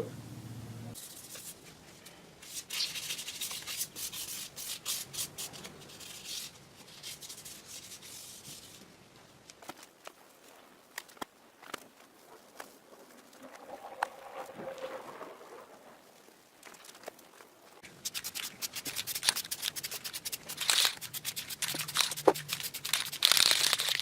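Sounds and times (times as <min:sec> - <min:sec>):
sandpaper scratching metal: 0:17.8 - 0:24.0.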